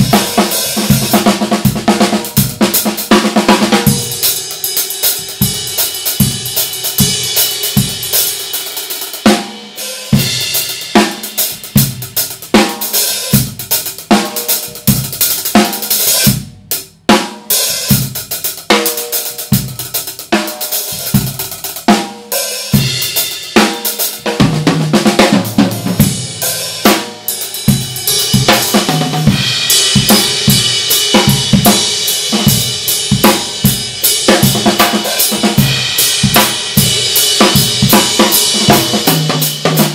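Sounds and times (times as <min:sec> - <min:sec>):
kick and snare drums: 0:00.0 - 0:08.4, 0:09.2 - 0:39.9.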